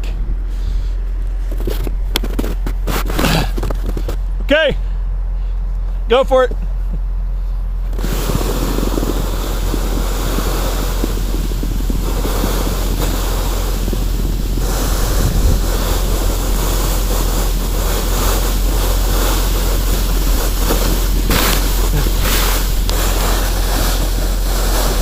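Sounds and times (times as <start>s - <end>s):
excavator engine rumble: 0.0s - 25.0s
wind buffeting microphone: 6.6s - 25.0s.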